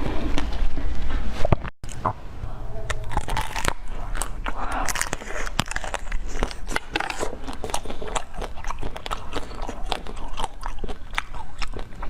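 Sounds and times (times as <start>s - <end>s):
crunchy chewing: 2.8s - 12.0s.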